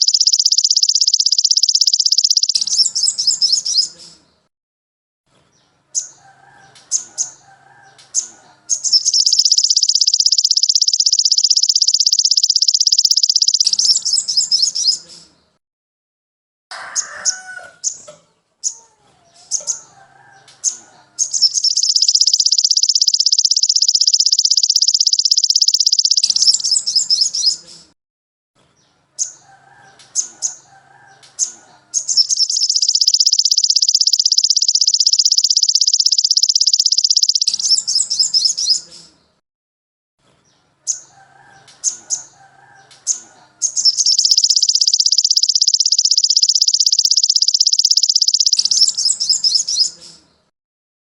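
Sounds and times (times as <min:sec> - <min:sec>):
bird rapid high trills: 0:00.0 - 0:03.9, 0:08.7 - 0:15.0, 0:21.2 - 0:27.6, 0:32.0 - 0:38.8, 0:43.6 - 0:50.0
bird high chirps: 0:00.0 - 0:04.5, 0:05.5 - 0:15.5, 0:16.9 - 0:27.9, 0:29.2 - 0:39.4, 0:40.9 - 0:50.5.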